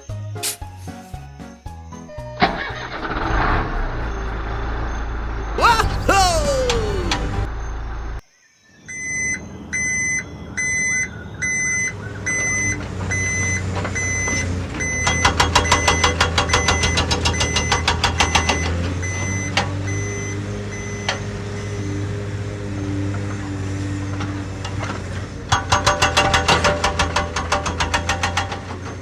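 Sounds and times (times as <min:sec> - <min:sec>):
low motor hum: 0:03.4 - 0:08.2, 0:09.4 - 0:29.0
reversing alarm beeping: 0:08.9 - 0:22.1.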